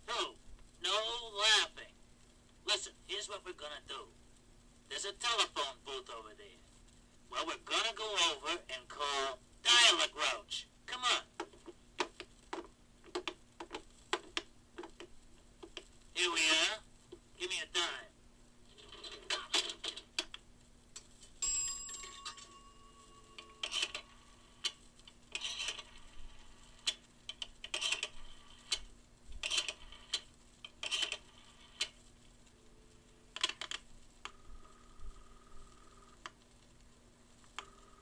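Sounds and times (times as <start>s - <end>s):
chime: 21.4s - 23.7s
phone ringing tone: 21.4s - 24.7s, 34.3s - 36.2s, 37.6s - 38.0s
phone dial clicks: 29.4s - 32.0s
coin dropping into slot: 30.8s - 31.2s.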